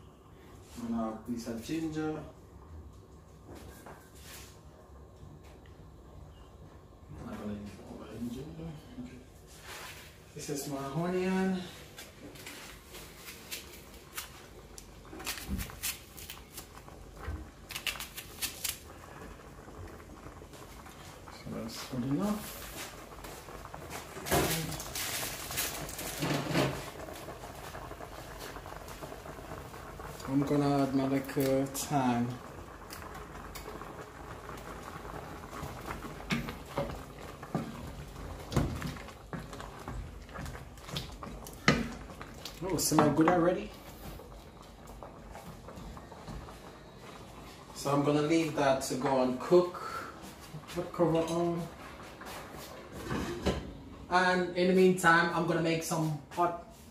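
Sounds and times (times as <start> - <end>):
pot simmering: 0.0 - 56.9.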